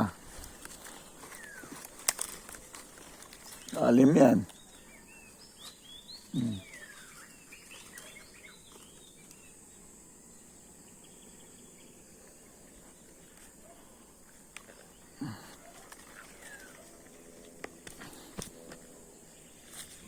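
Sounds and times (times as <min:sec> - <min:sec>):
birds chirping: 0:00.0 - 0:20.0
high insect drone: 0:00.0 - 0:20.0.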